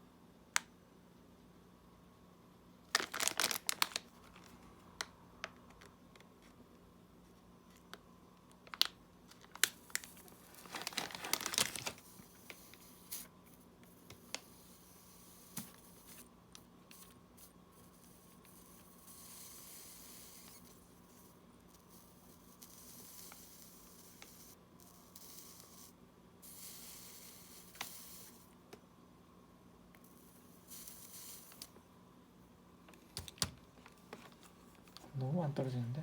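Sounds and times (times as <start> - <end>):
faint hiss: 9.7 - 28.6, 29.9 - 31.8.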